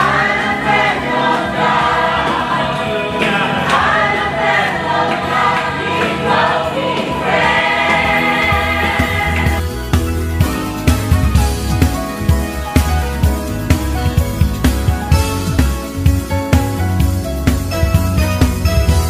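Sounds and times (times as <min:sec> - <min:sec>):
choir singing worship music: 0:00.0 - 0:12.4
band playing: 0:01.6 - 0:19.0.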